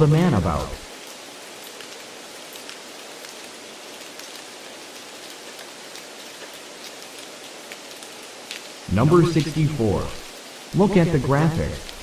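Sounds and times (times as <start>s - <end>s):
faint crackles: 0.0s - 12.0s
steady hiss: 0.0s - 12.0s.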